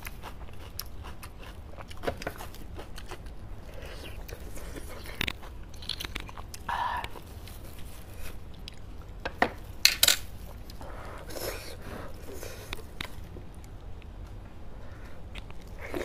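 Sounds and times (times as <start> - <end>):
chewing and wet mouth noises: 0.0 - 9.1.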